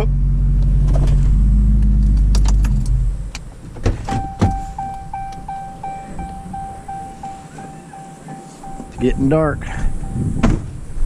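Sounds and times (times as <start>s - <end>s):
sharp thumps: 0.6s - 9.2s, 9.8s - 10.8s
car warning chime beeping: 4.1s - 10.4s.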